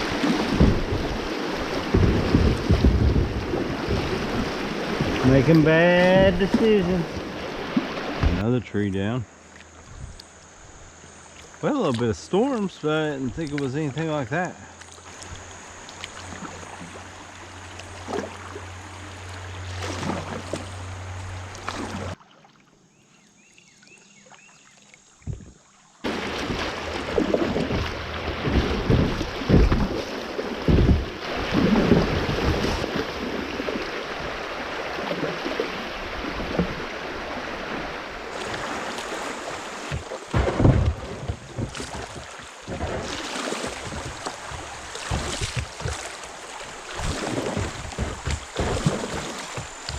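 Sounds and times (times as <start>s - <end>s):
wind buffeting microphone: 0.0s - 7.4s
paddling water noise: 0.0s - 49.9s
low thumps: 0.4s - 7.1s, 26.1s - 30.0s, 30.6s - 32.8s, 39.8s - 46.2s.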